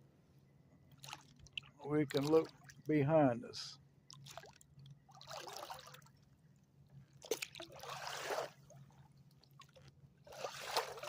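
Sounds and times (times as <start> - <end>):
water splashing and dripping: 0.9 - 2.9, 4.1 - 6.2, 7.2 - 11.0.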